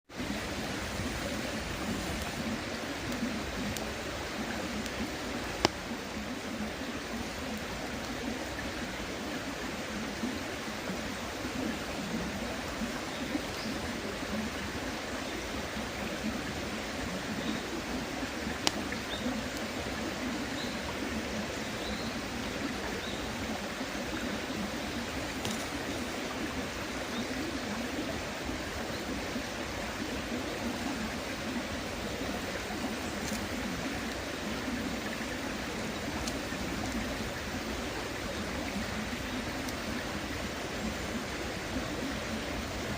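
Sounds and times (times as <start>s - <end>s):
river babbling: 0.0s - 42.9s
campfire popping: 0.2s - 8.8s, 18.2s - 21.0s, 24.1s - 27.7s, 28.7s - 41.2s
small birds chirping: 11.2s - 42.9s.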